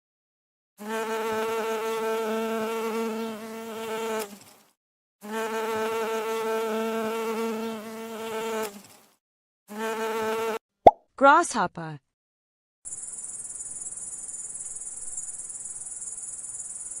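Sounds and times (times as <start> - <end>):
bee buzzing in flight: 0.8 - 4.6, 5.2 - 9.1, 9.7 - 10.6.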